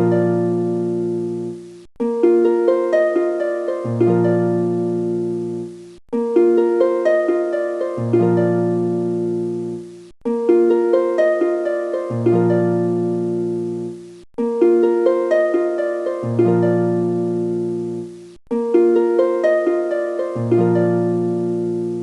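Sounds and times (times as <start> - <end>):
plucked-string melody: 0.0 - 22.0.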